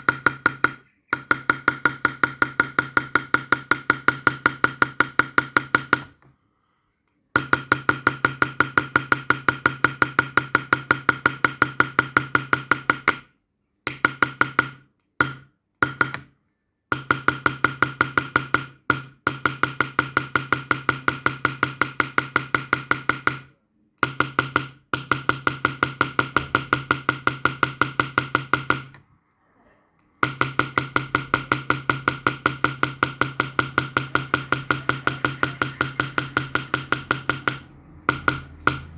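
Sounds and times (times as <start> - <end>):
hammer tapping metal tool: 0.0 - 6.3, 7.3 - 13.3, 13.9 - 16.3, 16.9 - 29.0, 30.1 - 38.9.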